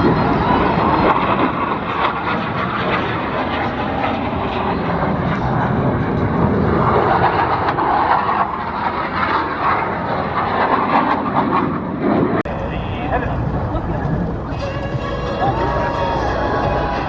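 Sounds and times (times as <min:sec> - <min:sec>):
jet noise rushing: 0:12.5 - 0:17.0.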